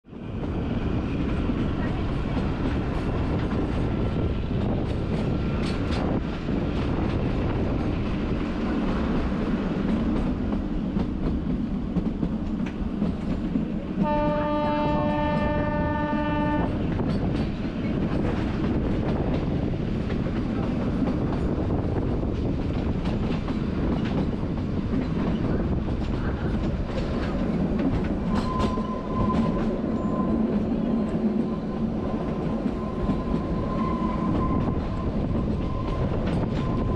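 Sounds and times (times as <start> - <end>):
train wheels clattering on rails: 0.2 - 36.9
train horn blast: 14.0 - 16.8.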